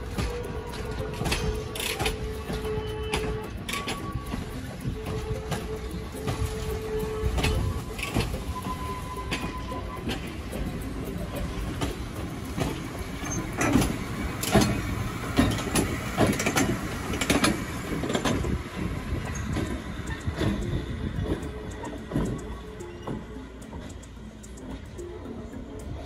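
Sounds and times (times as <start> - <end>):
train rumbling past: 0.0 - 26.0
wheels clanking over rail joints: 0.0 - 26.0.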